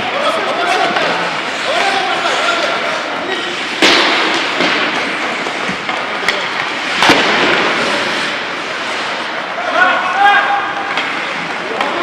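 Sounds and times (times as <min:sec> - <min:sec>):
hockey impacts echoing in rink: 0:00.0 - 0:12.0
steady background noise: 0:00.0 - 0:12.0.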